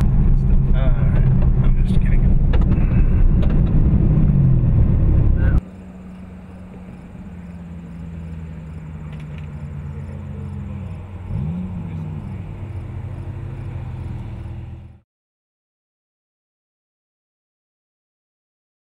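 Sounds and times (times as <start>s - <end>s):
car engine cruising: 0.0s - 15.0s
car engine revving: 0.0s - 15.0s.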